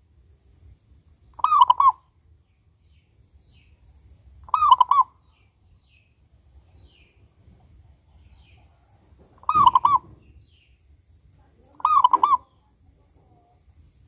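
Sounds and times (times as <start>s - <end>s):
small bird chirping: 0.3s - 13.7s
dove cooing: 1.4s - 2.0s, 4.5s - 5.1s, 9.4s - 10.3s, 11.7s - 12.6s.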